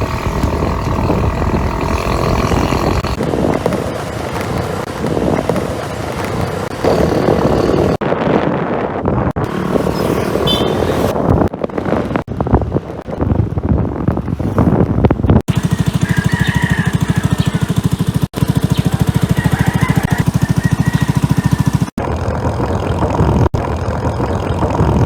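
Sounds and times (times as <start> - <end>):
scooter engine running: 0.0 - 8.0, 9.4 - 12.3, 15.4 - 25.0
wind noise on microphone: 0.0 - 25.0.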